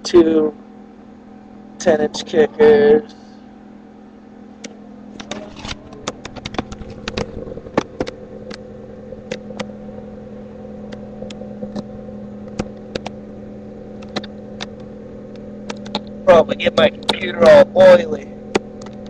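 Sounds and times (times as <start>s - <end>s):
car engine idling: 4.3s - 19.0s
sharp irregular clicks: 6.0s - 8.6s, 9.2s - 9.7s, 10.9s - 13.2s, 14.0s - 16.1s, 16.7s - 17.6s, 18.5s - 19.0s.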